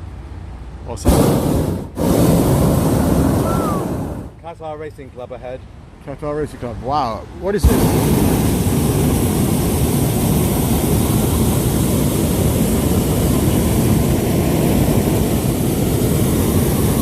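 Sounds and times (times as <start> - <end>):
propane burner firing: 1.0 - 4.4, 7.6 - 17.0.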